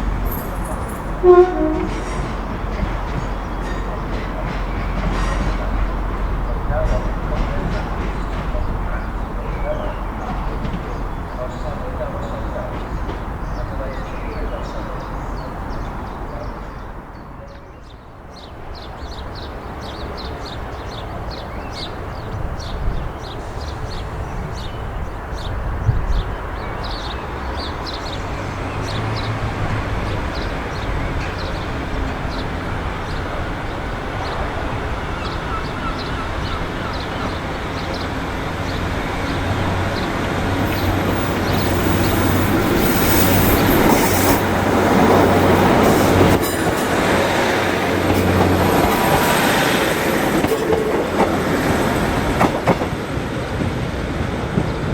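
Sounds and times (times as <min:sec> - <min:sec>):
train engine drone: 0:27.2 - 0:54.9.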